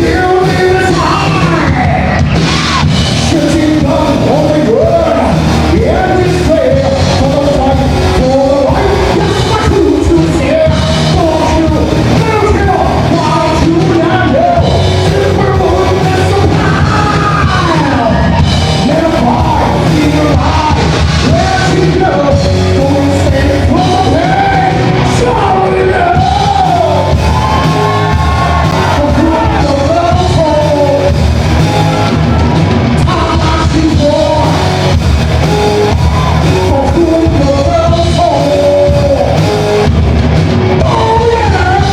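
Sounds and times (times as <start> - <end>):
person singing: 0.0 - 31.2, 36.1 - 39.7, 40.8 - 41.9
live rock band playing: 0.0 - 41.9.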